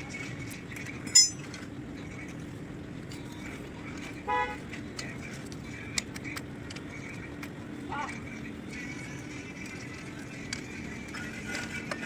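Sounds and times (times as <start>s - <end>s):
vehicle horn toot: 4.3s - 4.6s.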